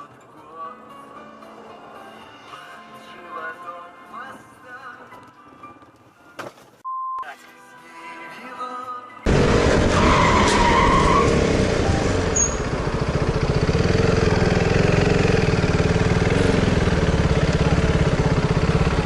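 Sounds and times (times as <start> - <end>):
car engine and road rumble: 9.3 - 19.0
brief higher tone: 12.1 - 12.7.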